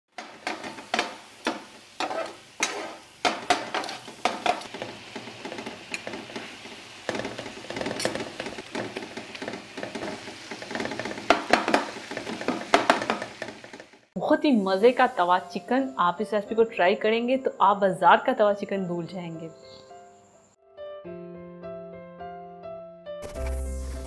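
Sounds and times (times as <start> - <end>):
metal spatula scraping a pan: 0.1 - 13.9
food sizzling in oil: 0.1 - 16.6, 23.2 - 24.0.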